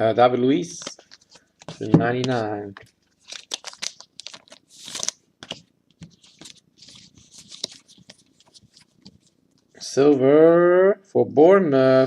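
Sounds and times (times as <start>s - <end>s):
cards rustling and clicking: 0.7s - 9.7s.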